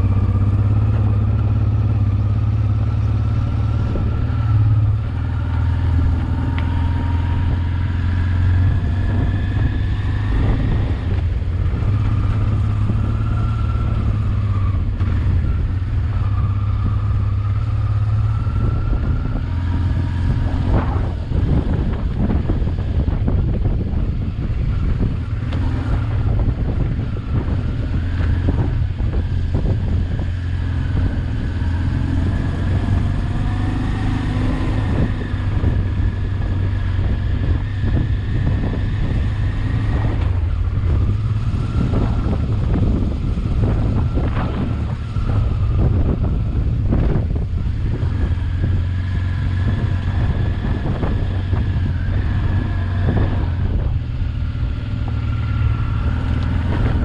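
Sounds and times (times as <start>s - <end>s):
motorcycle engine at low revs: 0.0s - 57.0s
wind on microphone: 0.0s - 57.0s.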